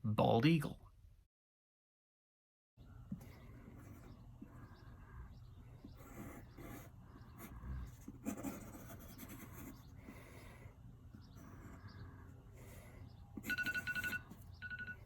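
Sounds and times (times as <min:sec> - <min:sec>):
pen scratching on paper: 0:03.4 - 0:04.6, 0:05.8 - 0:10.6.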